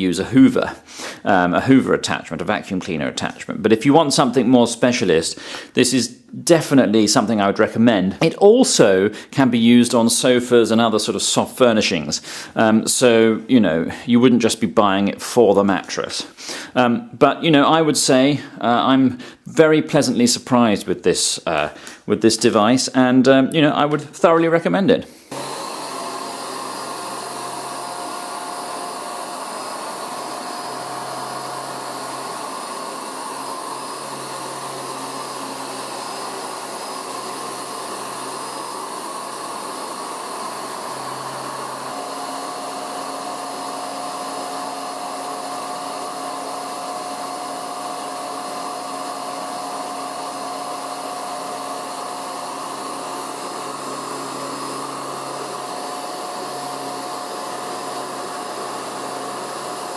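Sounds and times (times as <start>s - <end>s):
vacuum cleaner running: 25.1s - 59.9s.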